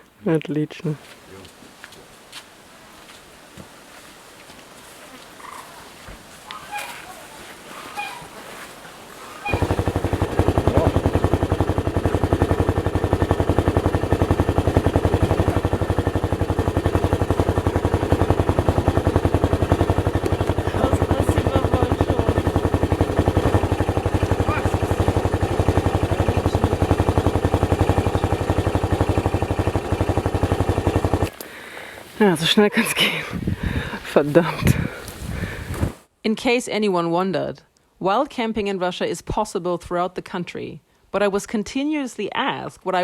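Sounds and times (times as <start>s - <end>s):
motorcycle engine running: 9.4s - 31.4s.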